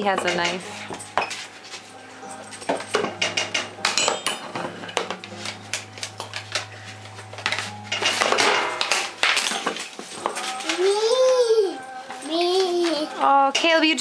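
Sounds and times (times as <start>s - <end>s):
utensils and dishes clattering: 0.0s - 14.0s
steady low hum: 1.8s - 9.6s.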